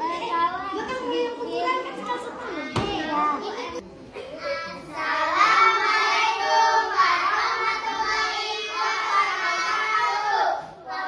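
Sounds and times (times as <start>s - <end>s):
child singing: 4.4s - 11.0s.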